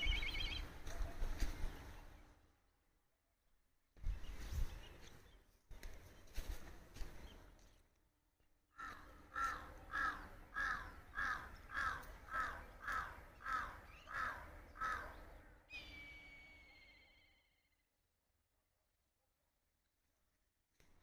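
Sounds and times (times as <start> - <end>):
crow cawing: 8.8 - 15.2.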